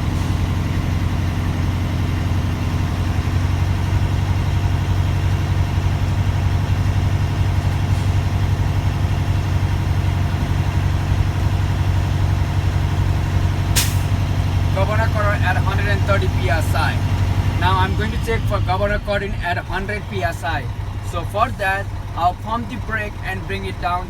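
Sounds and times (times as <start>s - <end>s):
truck diesel engine running: 0.0s - 24.0s
sharp burst of air: 13.8s - 14.2s.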